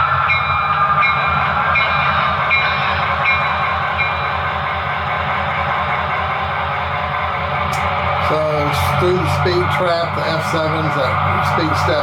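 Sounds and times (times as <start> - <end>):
model train diesel engine sound: 0.0 - 12.0.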